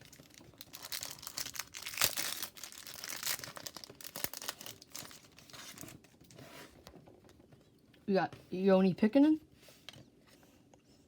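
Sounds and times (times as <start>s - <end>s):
wrapper tearing and crinkling: 0.0s - 6.0s.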